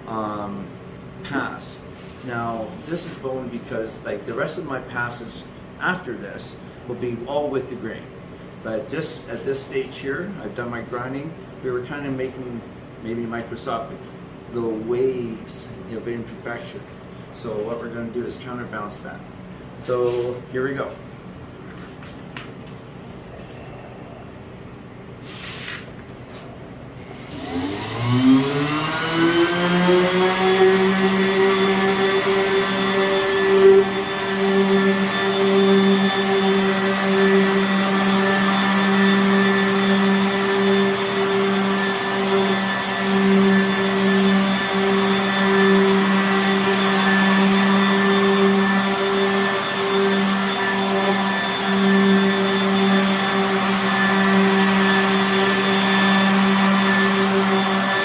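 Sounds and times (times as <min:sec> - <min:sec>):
orbital sander on wood: 0:27.2 - 0:58.0.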